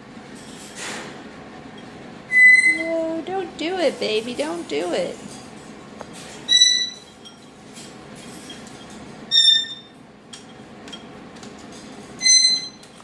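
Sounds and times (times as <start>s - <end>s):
parrot whistled call: 2.3s - 2.9s.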